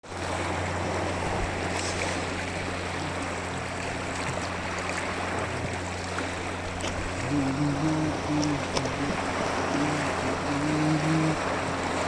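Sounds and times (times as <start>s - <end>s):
flowing water rushing: 0.0s - 12.0s
steady low hum: 0.1s - 12.0s.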